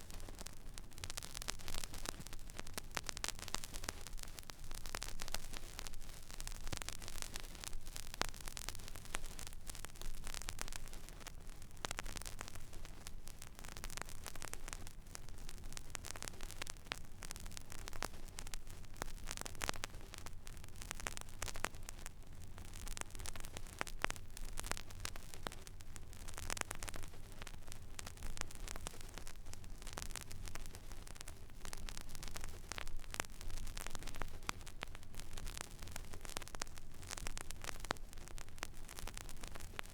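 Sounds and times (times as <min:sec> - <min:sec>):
vinyl record crackle and pops: 0:00.0 - 0:39.9.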